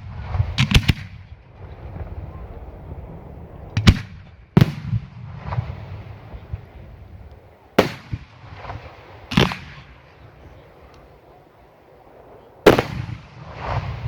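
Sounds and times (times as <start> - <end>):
fireworks banging: 0.0 - 2.4, 3.7 - 6.8, 7.8 - 10.5, 12.7 - 14.0.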